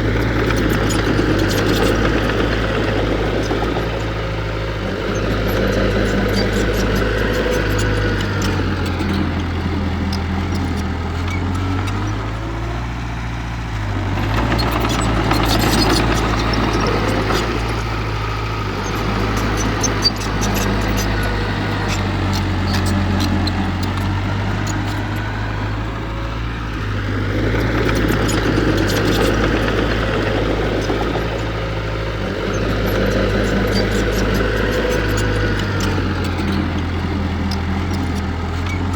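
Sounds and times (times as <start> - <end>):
heavy diesel engine running: 0.0 - 38.9
light clicks and clanks: 14.2 - 17.9, 18.8 - 25.1, 32.4 - 38.9.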